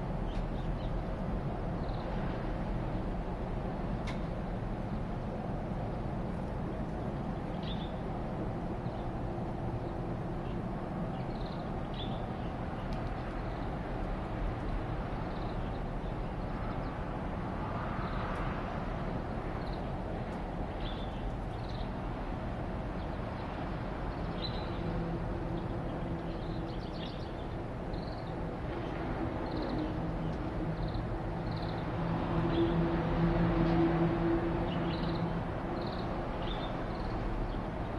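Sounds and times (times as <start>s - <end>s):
aircraft drone overhead: 0.0s - 37.9s
small birds chirping: 7.0s - 8.0s, 10.4s - 13.8s, 20.8s - 22.0s, 23.0s - 24.8s, 25.6s - 28.4s, 29.4s - 31.8s, 35.8s - 37.9s.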